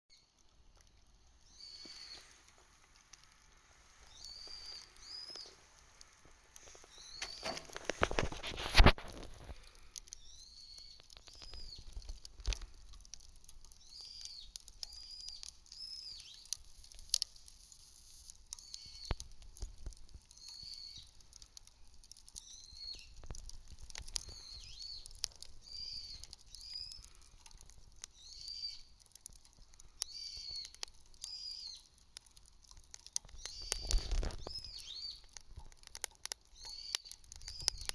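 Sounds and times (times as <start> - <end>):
campfire crackling: 0.2 - 37.9
bird chirping: 1.4 - 2.4, 4.0 - 5.7, 6.7 - 8.3, 10.2 - 12.0, 13.8 - 16.6, 18.6 - 19.3, 20.3 - 21.2, 22.4 - 23.3, 24.2 - 27.2, 28.1 - 28.9, 30.0 - 32.0, 33.3 - 35.3, 36.5 - 37.9.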